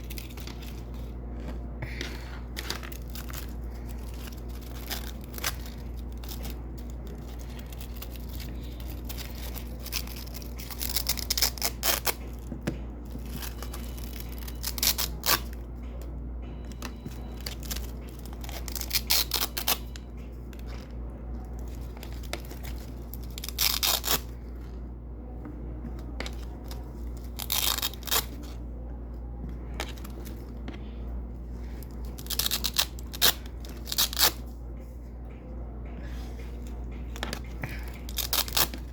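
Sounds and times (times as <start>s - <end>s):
hook-and-loop tape ripping: 2.6s - 12.4s, 17.4s - 19.9s, 21.6s - 24.3s, 26.6s - 28.5s, 32.1s - 34.4s, 37.8s - 38.9s.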